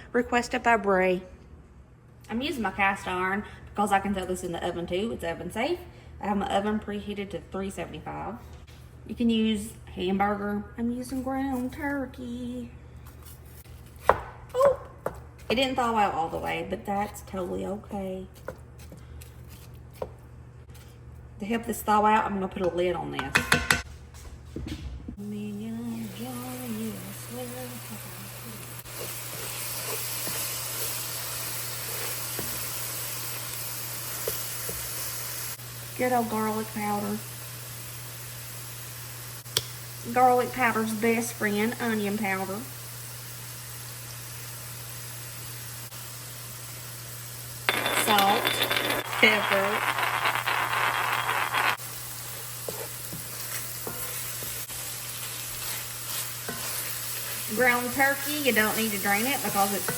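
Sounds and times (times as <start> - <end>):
stirring scrapes and taps: 18.3 - 21.0, 52.3 - 54.7, 55.5 - 58.0
meat sizzling in a skillet: 26.6 - 40.0, 42.3 - 47.6, 51.8 - 59.9.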